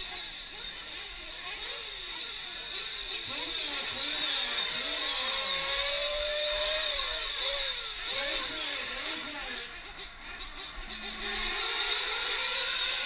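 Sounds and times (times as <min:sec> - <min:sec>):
steady high whine: 0:00.0 - 0:12.4
rc truck engines revving: 0:00.0 - 0:13.0.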